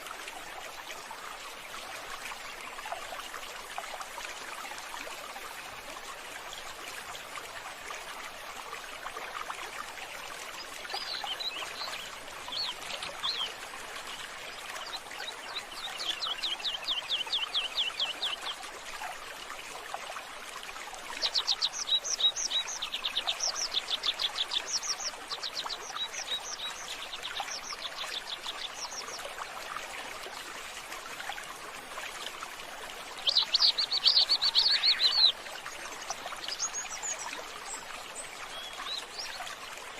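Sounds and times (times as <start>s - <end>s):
small birds chirping in trills: 10.6s - 18.6s, 21.2s - 29.3s, 33.1s - 39.7s.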